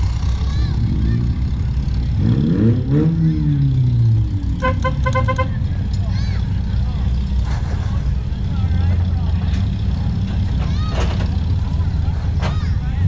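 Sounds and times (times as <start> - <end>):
race car engine revving: 0.0 - 5.9.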